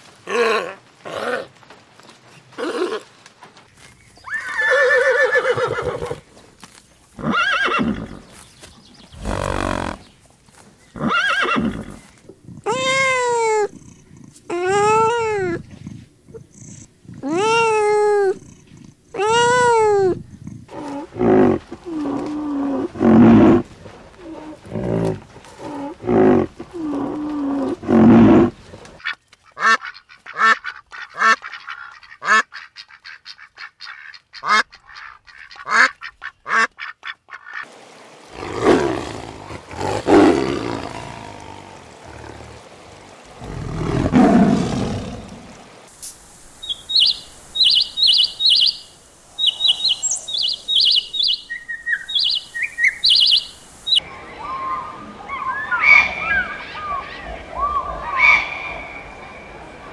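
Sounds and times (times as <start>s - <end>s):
tiger roaring: 9.2s - 10.0s, 20.5s - 28.9s, 38.3s - 45.6s
high rising and falling animal calls: 46.6s - 59.2s.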